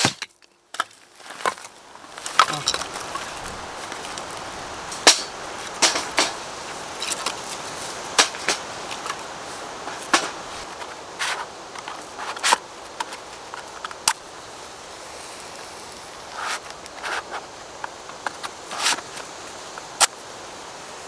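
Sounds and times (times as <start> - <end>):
sharp clicks and crunches: 0.0 - 14.2
steady hiss: 1.0 - 21.0.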